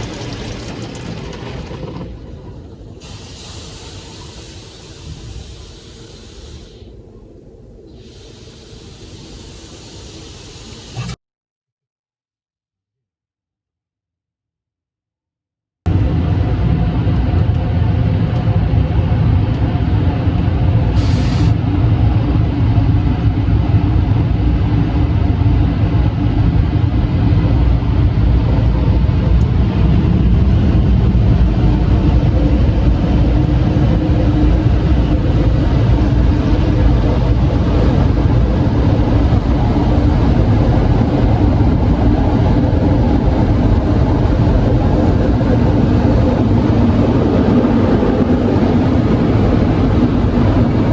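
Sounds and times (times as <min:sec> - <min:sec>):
loud mechanical rumble: 0:00.0 - 0:11.2, 0:15.9 - 0:50.9
brief high hiss: 0:03.0 - 0:06.9, 0:07.9 - 0:11.2, 0:20.9 - 0:21.6
low hum: 0:15.9 - 0:50.9.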